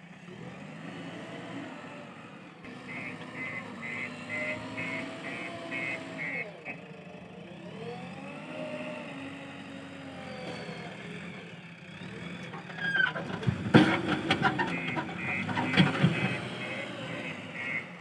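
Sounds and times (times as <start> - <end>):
diesel engine running: 0.0 - 18.0
knocks and clatter: 12.4 - 16.7.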